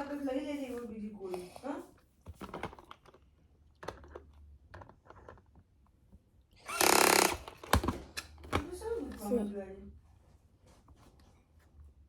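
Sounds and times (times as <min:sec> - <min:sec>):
small electric drill running: 0:06.6 - 0:07.7.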